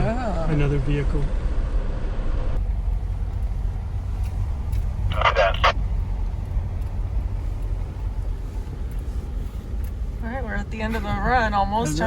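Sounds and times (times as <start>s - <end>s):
car engine and tyres rumbling: 0.0s - 12.0s
person speaking: 5.1s - 5.8s.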